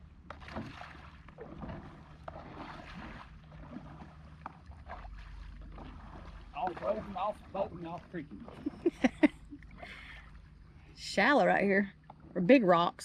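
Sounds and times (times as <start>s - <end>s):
shallow river water splashing: 0.0s - 13.0s
small knocks of kayak: 0.2s - 7.2s.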